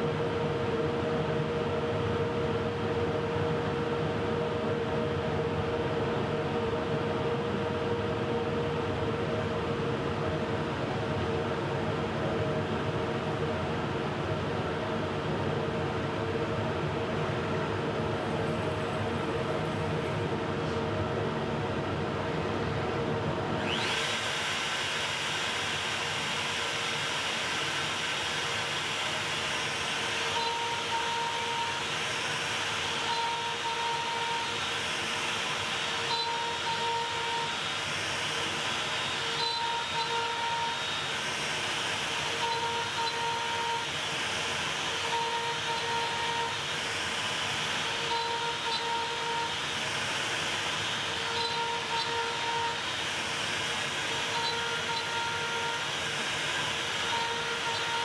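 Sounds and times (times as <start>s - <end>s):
cnc router spinning: 0.0s - 58.0s.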